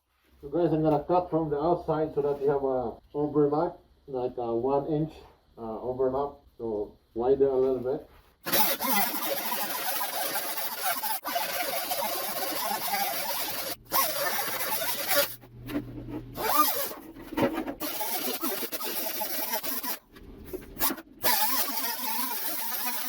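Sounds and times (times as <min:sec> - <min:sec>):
sheet metal cutting rasp: 0:08.5 - 0:23.0.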